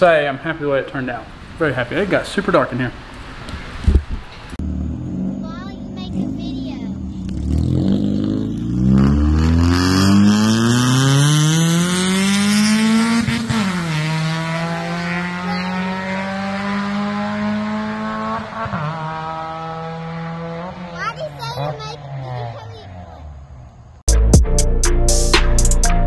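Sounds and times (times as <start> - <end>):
car engine accelerating: 4.6 - 24.0.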